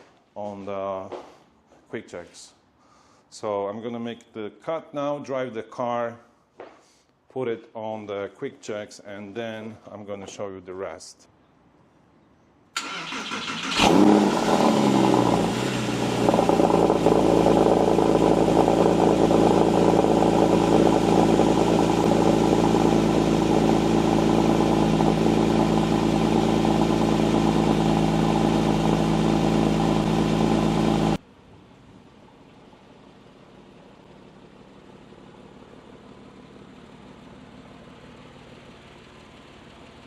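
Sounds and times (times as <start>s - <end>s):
car engine starting and idling: 12.8s - 40.0s.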